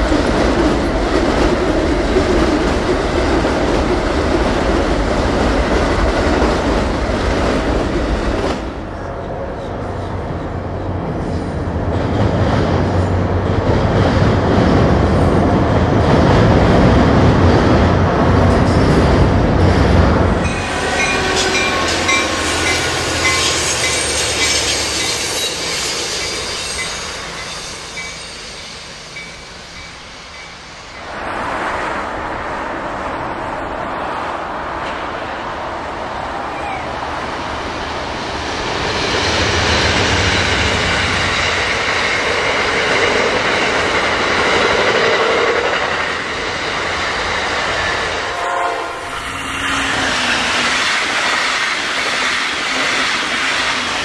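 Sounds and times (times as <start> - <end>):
train wheels clacking on rails: 11.8 - 31.1, 38.3 - 54.0
train horn: 20.4 - 24.6, 48.3 - 50.2.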